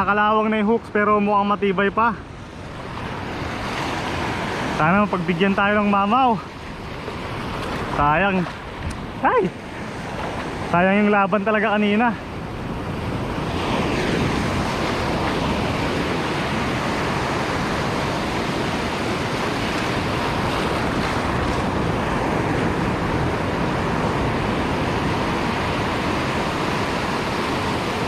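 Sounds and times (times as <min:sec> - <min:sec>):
sea waves breaking on shore: 0:00.0 - 0:28.0
wind on microphone: 0:06.5 - 0:11.0, 0:12.1 - 0:28.0.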